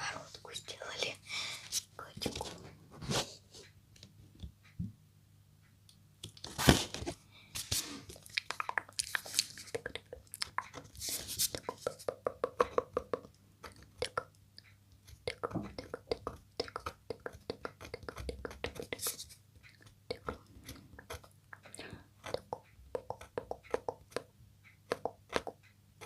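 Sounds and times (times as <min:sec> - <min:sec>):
wet mouth clicks and smacks: 0:08.1 - 0:14.4.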